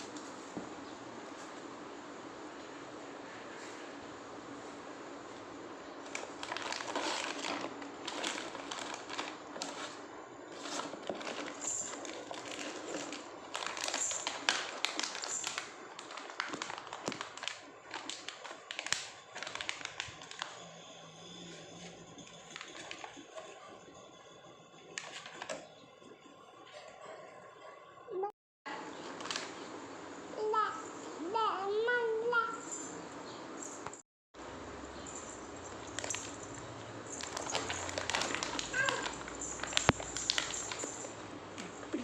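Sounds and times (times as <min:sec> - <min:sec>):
packaging rustling and crinkling: 0:06.0 - 0:20.8, 0:21.4 - 0:23.8, 0:24.8 - 0:25.7, 0:29.1 - 0:29.6, 0:35.1 - 0:42.0.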